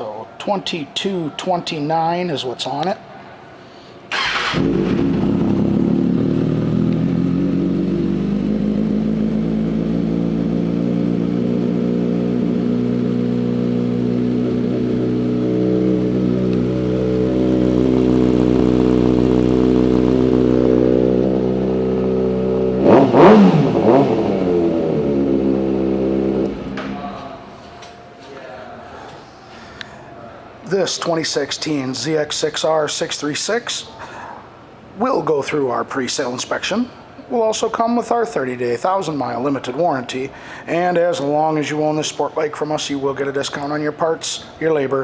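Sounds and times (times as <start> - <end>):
motorcycle engine idling and revving: 4.1 - 27.4.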